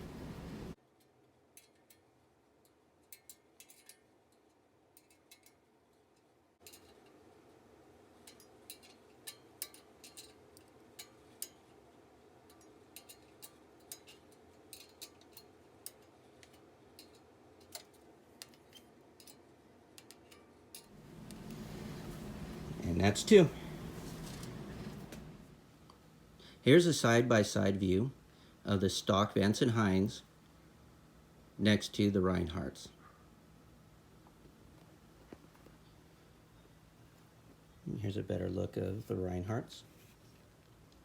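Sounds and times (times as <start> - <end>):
wrench clicking on metal: 1.6 - 5.6.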